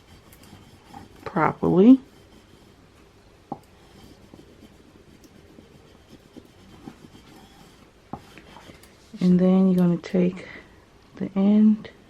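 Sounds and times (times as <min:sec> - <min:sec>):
squeegee scraping: 0:00.0 - 0:02.9, 0:03.8 - 0:09.3.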